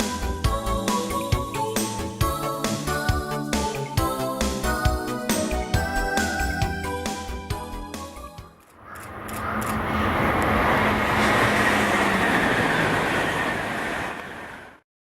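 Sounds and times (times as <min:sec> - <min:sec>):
train rolling on rails: 0:08.6 - 0:14.8.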